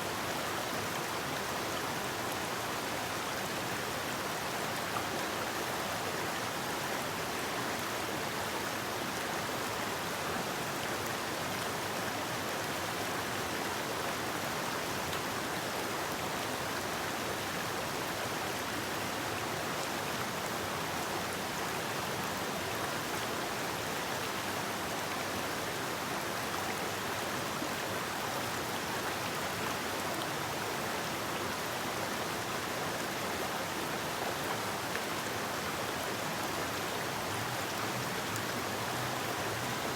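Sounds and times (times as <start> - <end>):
river rushing over rocks: 19.4 - 39.9.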